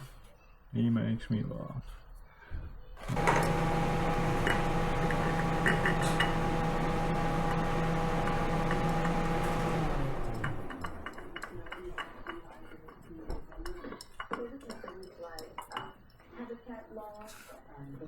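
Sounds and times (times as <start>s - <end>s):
machine running: 3.0s - 11.7s.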